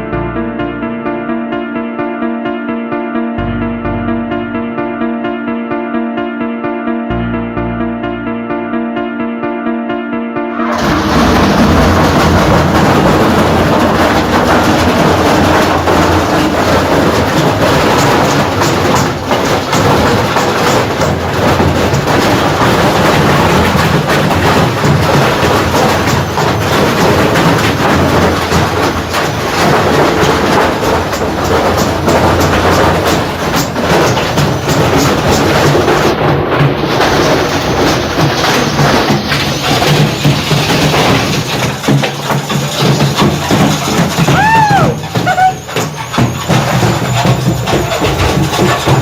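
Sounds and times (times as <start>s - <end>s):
stone rattling in washing machine drum: 10.5s - 49.0s
washing machine motor hum: 10.5s - 49.0s.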